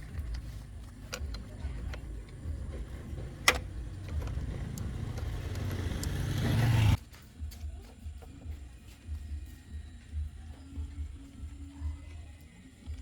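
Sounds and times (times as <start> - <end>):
motor running: 0.0 - 7.0.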